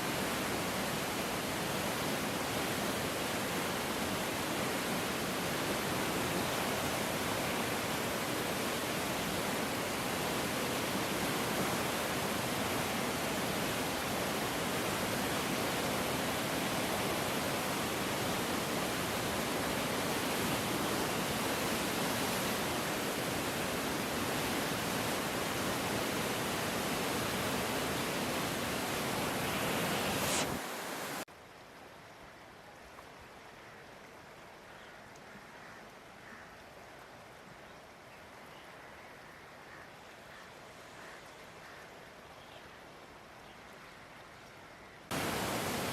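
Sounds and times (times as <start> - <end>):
flooded river rushing: 0.0 - 31.3, 45.1 - 45.9.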